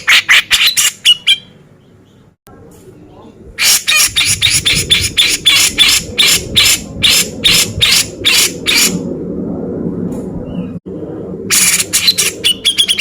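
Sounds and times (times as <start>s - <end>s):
bird giving harsh rasping calls: 0.0s - 1.6s, 3.6s - 9.0s, 11.5s - 13.0s
low steady hum: 1.4s - 13.0s.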